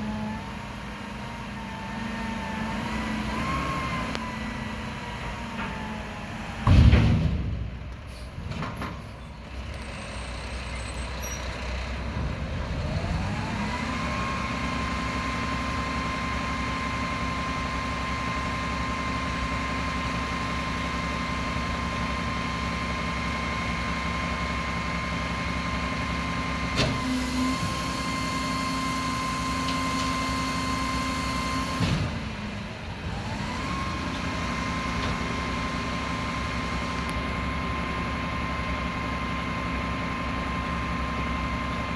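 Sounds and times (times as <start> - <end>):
truck diesel engine revving: 0.0 - 6.6, 9.5 - 19.5
loud bang: 6.6 - 8.0
whining hydraulic pump: 26.8 - 32.0.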